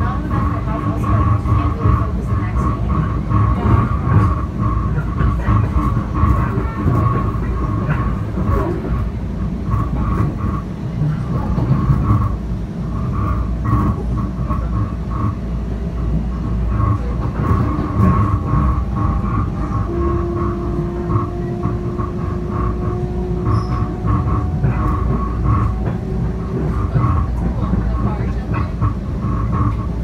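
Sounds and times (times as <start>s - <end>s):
train wheels rumbling on rail: 0.0s - 30.0s
high whine: 16.5s - 30.0s.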